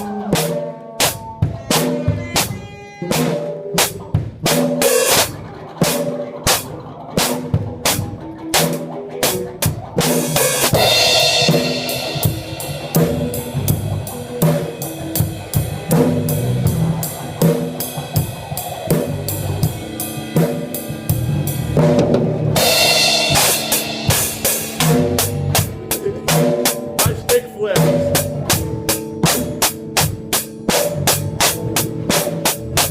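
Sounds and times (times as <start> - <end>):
drum kit playing: 0.0 - 32.9
instruments holding pitched notes: 5.1 - 30.1.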